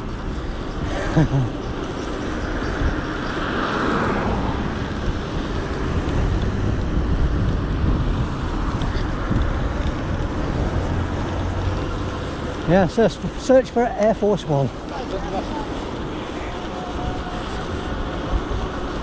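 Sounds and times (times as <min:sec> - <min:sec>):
road and traffic noise: 0:00.0 - 0:19.0
wind rumbling on microphone: 0:00.0 - 0:19.0.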